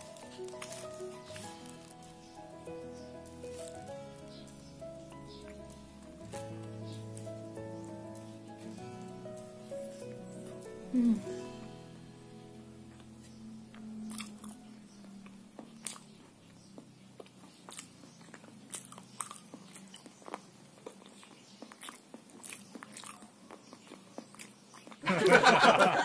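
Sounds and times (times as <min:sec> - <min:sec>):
person chewing crunchy snack: 0:00.2 - 0:01.9, 0:13.7 - 0:25.0.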